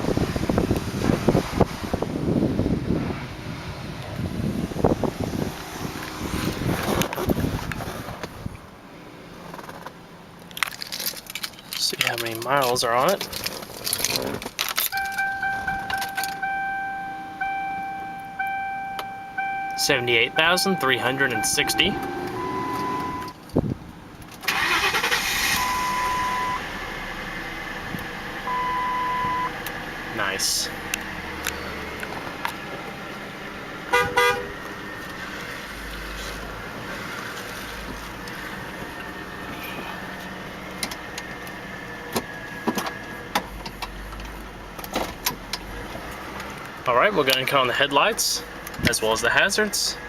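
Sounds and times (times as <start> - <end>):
car engine running: 13.1 - 47.4
dashboard warning chime beeping: 14.9 - 23.4, 24.6 - 26.6, 28.5 - 29.6.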